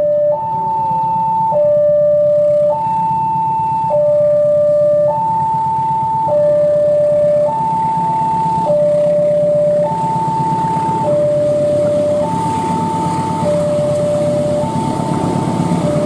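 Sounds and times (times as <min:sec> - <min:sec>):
two-tone crossing alarm: 0:00.0 - 0:16.0
low rumble: 0:08.5 - 0:16.0.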